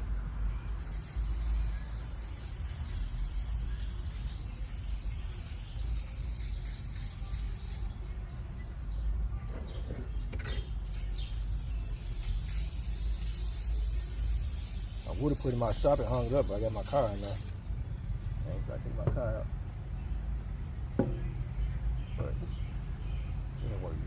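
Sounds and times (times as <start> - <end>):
paint spraying hiss: 0.8 - 8.0, 10.8 - 17.6.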